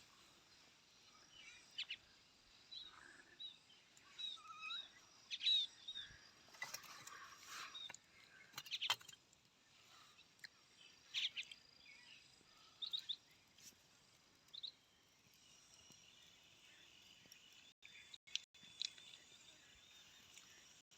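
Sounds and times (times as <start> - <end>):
bird chirps: 1.0 - 9.2, 9.8 - 13.6.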